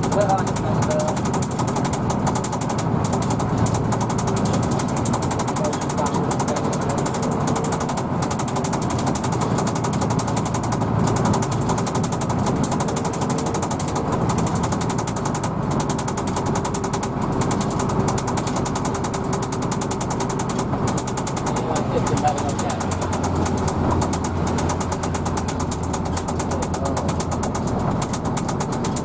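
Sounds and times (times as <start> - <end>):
bus diesel engine running: 0.0 - 29.0.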